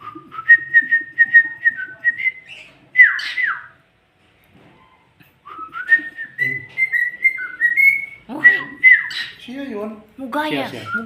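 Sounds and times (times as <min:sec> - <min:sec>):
bird whistling a tune: 0:00.0 - 0:03.8, 0:05.4 - 0:09.4.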